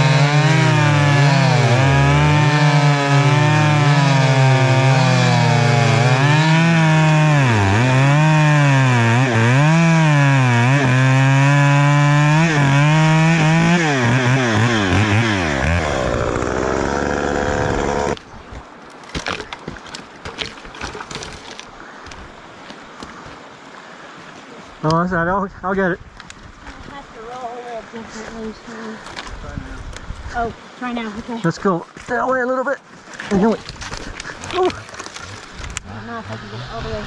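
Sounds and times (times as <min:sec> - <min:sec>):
chainsaw cutting log: 0:00.0 - 0:18.3, 0:19.1 - 0:21.7, 0:33.1 - 0:37.0.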